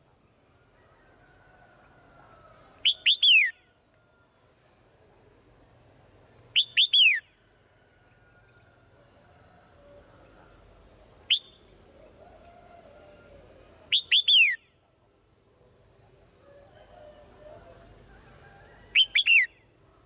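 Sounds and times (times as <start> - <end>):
faint high-pitched hiss: 0.0 - 20.0
swallow whistled calls: 13.9 - 14.6.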